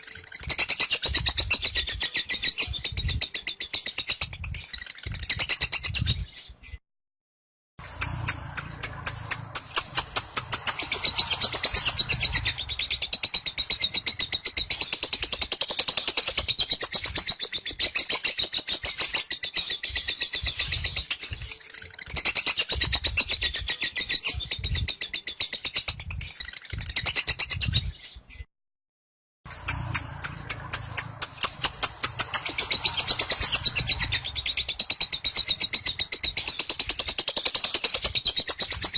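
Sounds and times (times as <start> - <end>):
bird chattering trill: 7.8 - 21.3, 29.5 - 38.9.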